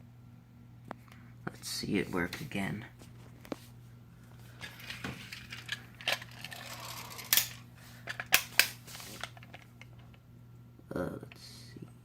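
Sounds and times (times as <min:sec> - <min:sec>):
plastic parts clicking and clattering: 0:04.6 - 0:10.2.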